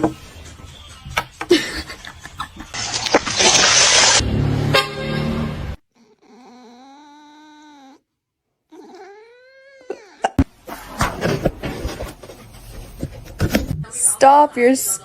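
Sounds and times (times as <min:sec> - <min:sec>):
knocking and rustling: 0:00.0 - 0:00.3, 0:10.4 - 0:13.8
cat meowing: 0:06.0 - 0:08.0, 0:08.7 - 0:10.3.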